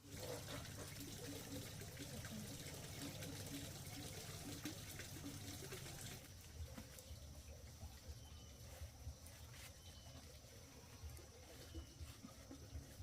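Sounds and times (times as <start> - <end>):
running water rushing: 0.0 - 9.2.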